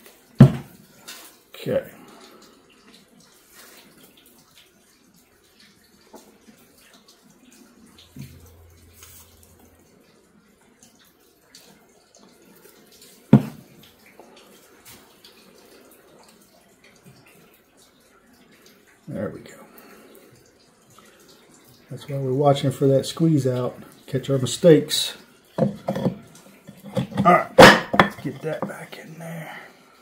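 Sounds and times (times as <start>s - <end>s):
workbench handling sounds: 25.6s - 28.3s.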